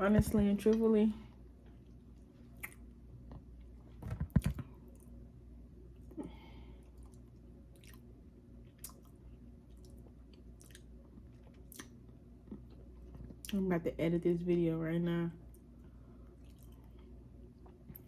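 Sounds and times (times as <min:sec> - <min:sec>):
close chewing: 0:07.0 - 0:08.1.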